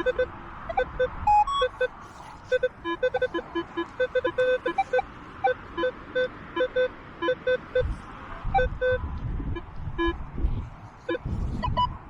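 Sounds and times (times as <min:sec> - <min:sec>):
metal detector short beeps: 0:00.0 - 0:01.9, 0:02.5 - 0:07.9, 0:11.1 - 0:11.9
wind buffeting microphone: 0:07.7 - 0:12.0.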